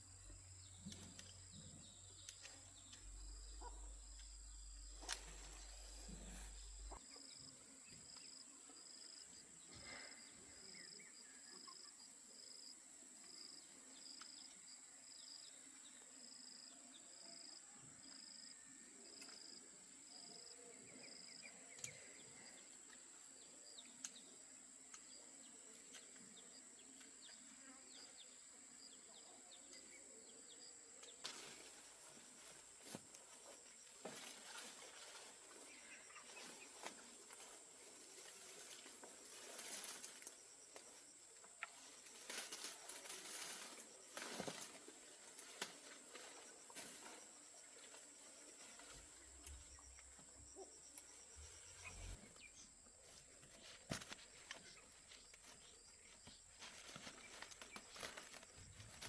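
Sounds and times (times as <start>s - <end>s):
insect chirping in pulses: 31.9s - 53.2s.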